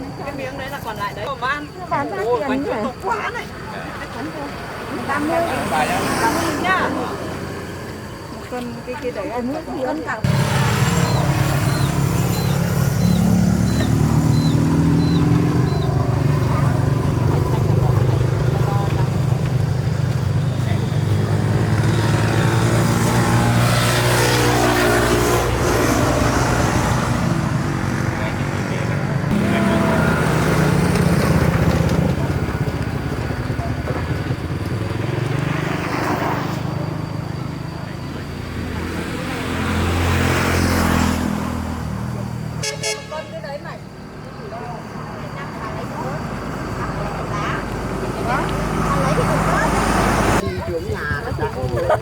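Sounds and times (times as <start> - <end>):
small engine running: 10.2 - 40.9.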